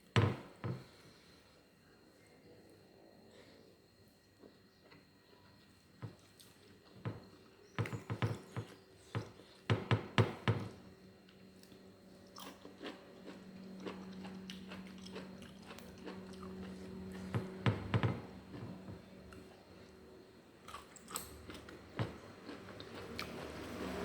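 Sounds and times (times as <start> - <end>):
person chewing crunchy food: 11.6 - 17.6, 20.6 - 23.6.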